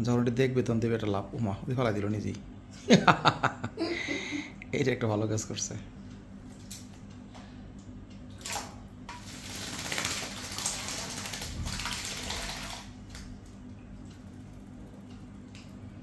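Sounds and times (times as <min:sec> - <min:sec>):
bird splashing in water: 0:08.4 - 0:13.3.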